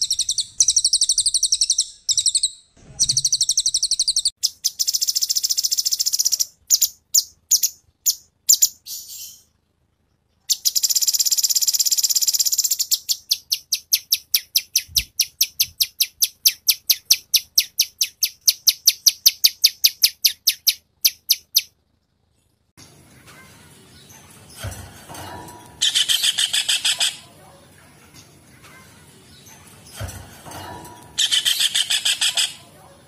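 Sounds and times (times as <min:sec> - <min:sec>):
songbird chirps and trills: 0:00.0 - 0:21.8, 0:22.4 - 0:33.0.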